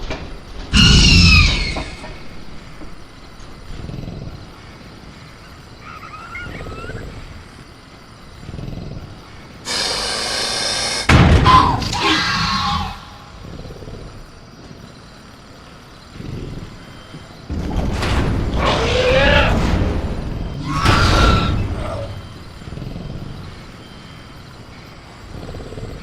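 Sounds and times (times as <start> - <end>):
low jungle ambience: 0.0 - 26.0
dinosaur hissing screech: 0.7 - 2.2, 9.6 - 13.5, 18.6 - 19.6, 20.6 - 22.5
shrieking call: 0.8 - 2.1
loud sudden bang: 11.1 - 12.0.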